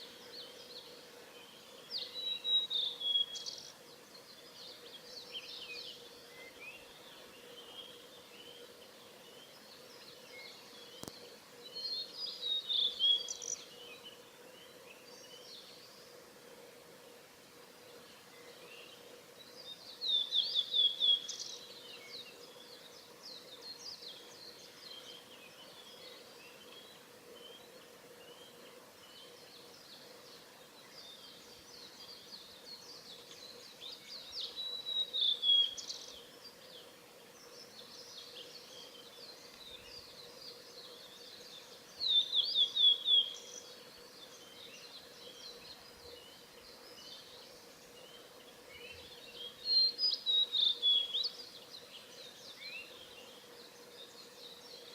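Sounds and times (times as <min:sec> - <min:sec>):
quiet bird chirping: 0:00.0 - 0:54.9
flycatcher singing: 0:01.4 - 0:03.8, 0:09.2 - 0:15.7, 0:18.4 - 0:22.8, 0:23.4 - 0:36.8, 0:37.4 - 0:53.5.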